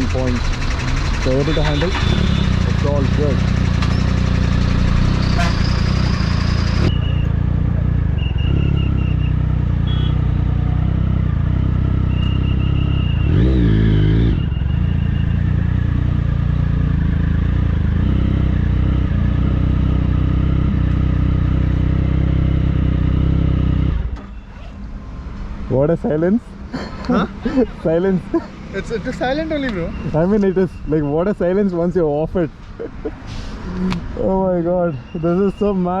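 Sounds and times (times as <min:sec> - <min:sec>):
motorcycle engine running: 0:00.0 - 0:23.8.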